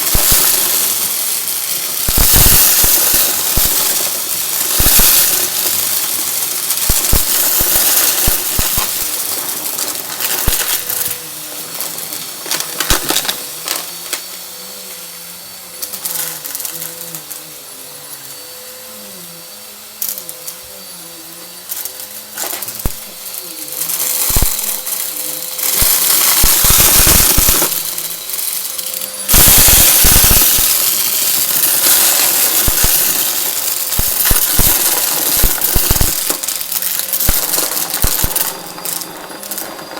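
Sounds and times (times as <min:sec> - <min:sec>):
debris rattling inside vacuum: 0:00.0 - 0:14.3, 0:22.3 - 0:39.9
vacuum cleaner motor rushing: 0:00.0 - 0:39.9.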